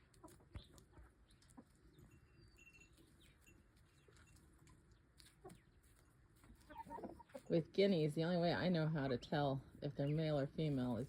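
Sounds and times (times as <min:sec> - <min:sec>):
chickens clucking softly: 0:00.0 - 0:02.3, 0:03.0 - 0:07.5.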